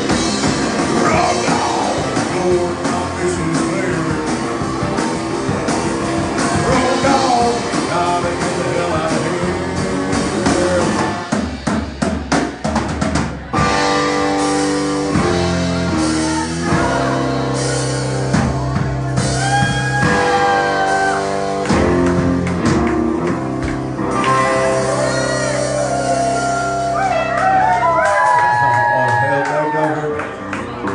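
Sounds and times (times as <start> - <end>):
live rock band: 0.0 - 30.9
person singing: 0.9 - 4.5, 6.6 - 11.2, 24.3 - 27.3
sliding guitar notes: 19.0 - 28.0.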